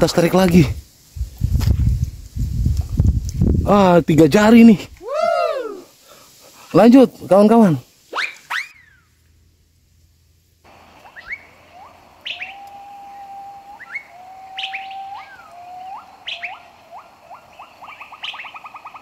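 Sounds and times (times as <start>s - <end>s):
long bird whistles: 8.1s - 9.2s, 10.8s - 19.0s
sharp falling bird chirps: 8.1s - 9.2s, 10.7s - 19.0s
fast bird trill: 11.0s - 19.0s.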